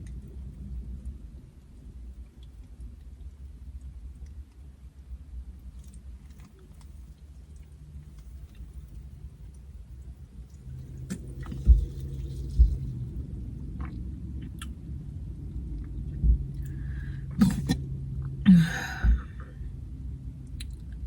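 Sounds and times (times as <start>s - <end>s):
steady low hum: 0.0s - 21.0s
dull low thumps: 10.7s - 19.6s
person burping: 17.3s - 17.8s, 18.4s - 19.6s.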